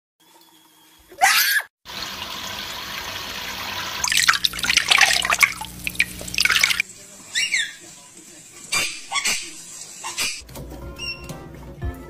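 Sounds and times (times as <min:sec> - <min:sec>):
parrot screeching: 0:01.1 - 0:01.7
running water: 0:01.9 - 0:10.2
water splashing: 0:02.4 - 0:06.8.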